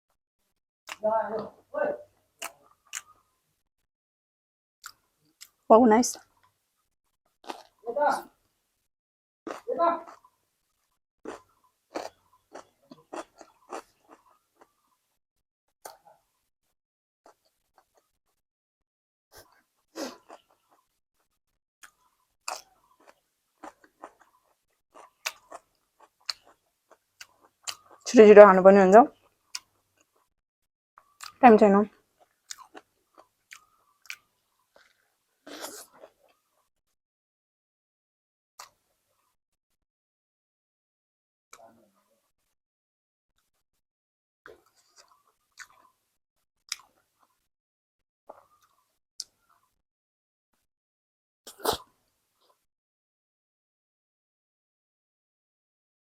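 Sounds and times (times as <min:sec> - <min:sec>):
mouth clicks: 0:02.4 - 0:03.2
person chewing crunchy food: 0:02.4 - 0:03.3, 0:07.3 - 0:07.8, 0:09.5 - 0:14.9, 0:17.3 - 0:18.4, 0:19.4 - 0:20.9, 0:21.8 - 0:28.1, 0:31.0 - 0:31.4, 0:32.0 - 0:36.7, 0:44.5 - 0:46.0, 0:46.6 - 0:47.5, 0:48.3 - 0:49.7.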